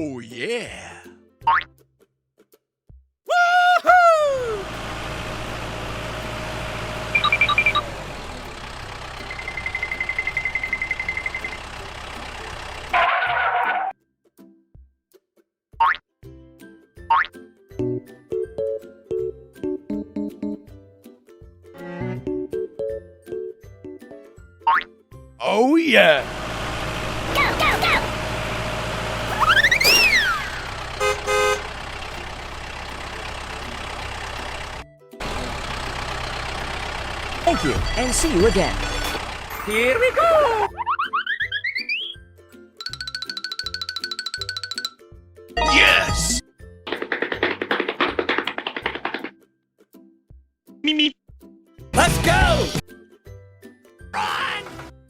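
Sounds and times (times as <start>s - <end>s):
toy vehicle engine hum: 4.6s - 13.0s, 26.2s - 40.0s
short high electronic beeps: 29.3s - 30.6s
whistle-like sound effect: 29.3s - 30.8s
toy vehicle motor hum: 29.3s - 30.9s
short horn toots: 29.3s - 31.7s.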